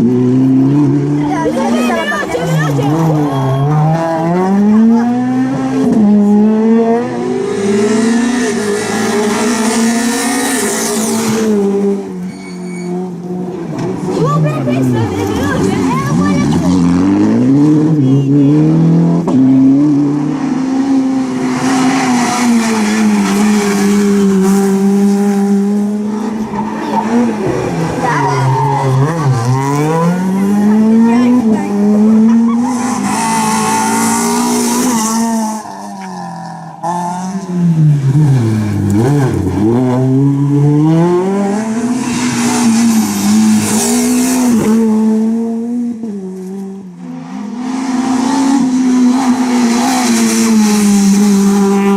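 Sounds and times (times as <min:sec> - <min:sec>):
rally car engines revving: 0:00.0 - 0:51.9
tyre squeal: 0:02.3 - 0:04.0, 0:12.2 - 0:13.2.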